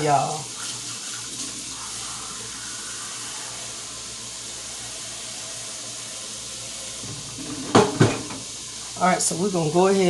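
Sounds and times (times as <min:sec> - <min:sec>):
vegetables sizzling: 0:00.0 - 0:10.0.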